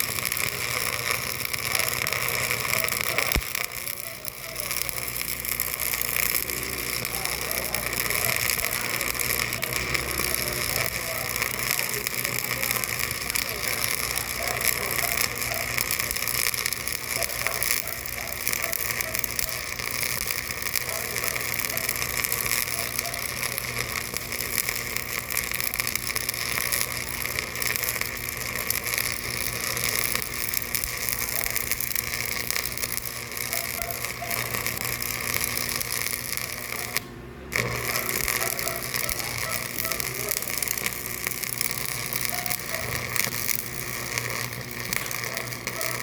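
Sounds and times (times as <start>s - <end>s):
faint voices: 0.0s - 46.0s.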